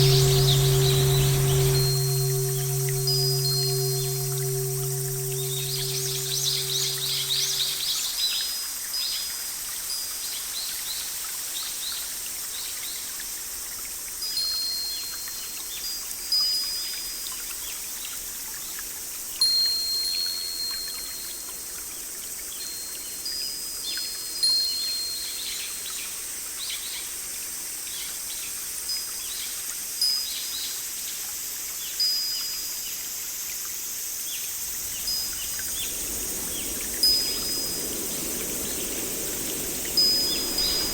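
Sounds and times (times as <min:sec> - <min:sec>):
rain hiss: 0:00.0 - 0:08.0, 0:21.6 - 0:40.9
bright ringing note: 0:00.0 - 0:08.1, 0:34.8 - 0:40.9
forest birds chirping: 0:34.8 - 0:40.9.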